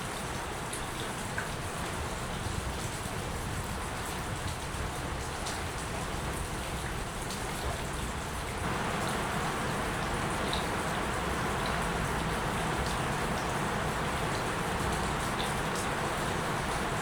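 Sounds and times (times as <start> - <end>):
rain hissing: 8.6 - 17.0
raindrop ticks: 8.6 - 17.0.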